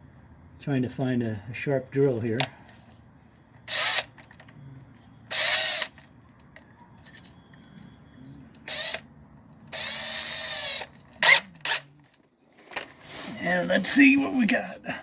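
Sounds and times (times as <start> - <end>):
electric drill bursts: 3.7 - 4.1, 5.3 - 6.0, 8.7 - 9.0, 9.7 - 11.8.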